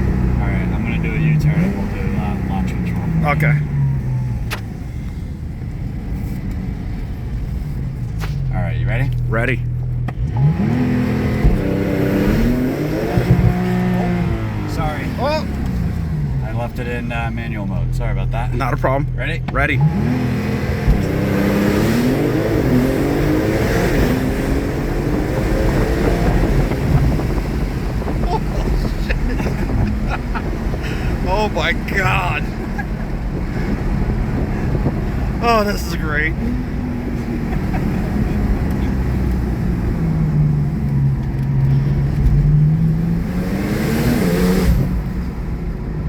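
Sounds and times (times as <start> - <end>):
car engine revving at full throttle: 0.0 - 46.0
gear upshifts: 9.1 - 17.5, 18.6 - 45.5.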